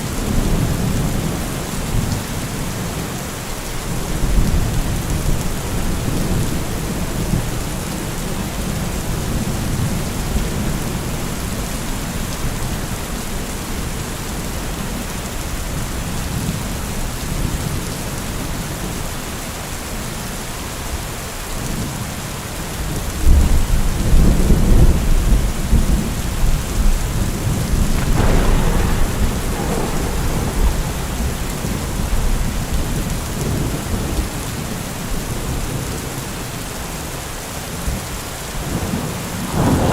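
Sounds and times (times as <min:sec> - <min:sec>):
steady rain falling: 0:00.0 - 0:39.9
thunder rumbling: 0:24.1 - 0:34.6, 0:38.7 - 0:39.9.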